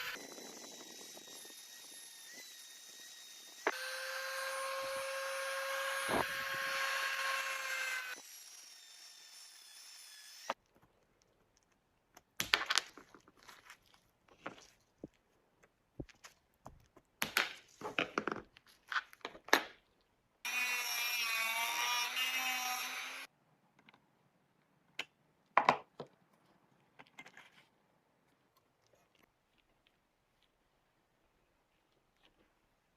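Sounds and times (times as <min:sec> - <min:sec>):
small motor whirring: 0:00.0 - 0:10.6
clicks knocks and scraping: 0:25.0 - 0:27.8.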